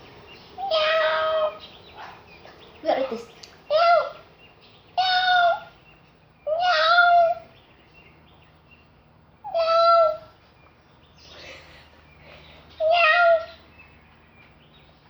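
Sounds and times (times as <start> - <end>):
cat meowing: 0.6 - 1.6, 6.5 - 7.4, 9.5 - 10.3, 12.8 - 13.6.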